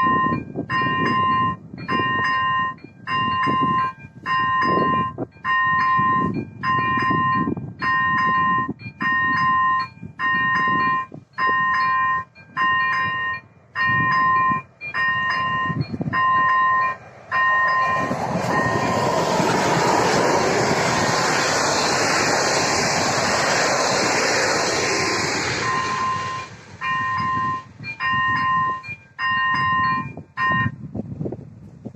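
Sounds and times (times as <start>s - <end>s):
level crossing warning bell ringing: 0.0s - 19.2s, 25.6s - 30.8s
train rumbling past: 0.0s - 30.8s.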